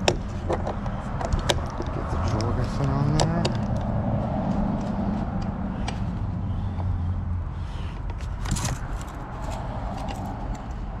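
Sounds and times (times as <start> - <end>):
metal clicks and scrapes: 7.8 - 11.0.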